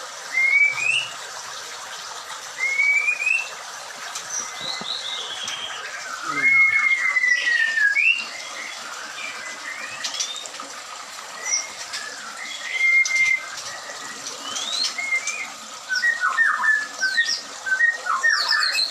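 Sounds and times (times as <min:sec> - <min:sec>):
bird whistling: 0:00.3 - 0:01.1, 0:02.6 - 0:03.5, 0:06.2 - 0:08.3, 0:11.5 - 0:18.9.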